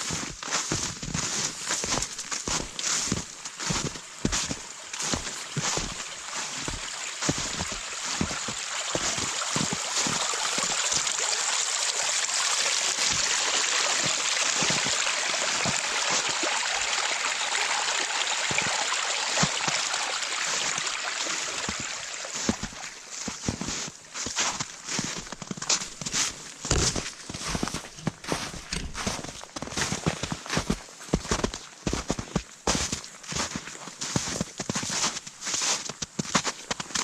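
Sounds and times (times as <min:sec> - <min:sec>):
rushing water: 0:00.0 - 0:37.0.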